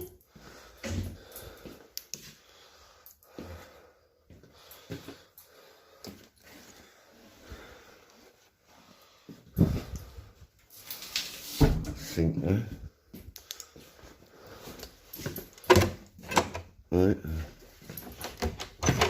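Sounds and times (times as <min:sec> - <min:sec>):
man breathing: 0:00.0 - 0:11.2, 0:12.7 - 0:15.7.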